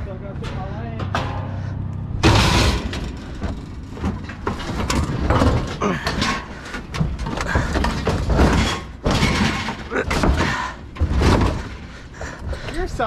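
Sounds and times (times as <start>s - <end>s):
junk scraping and clattering: 0.0s - 13.0s
hard breathing: 5.7s - 9.0s, 10.0s - 13.0s.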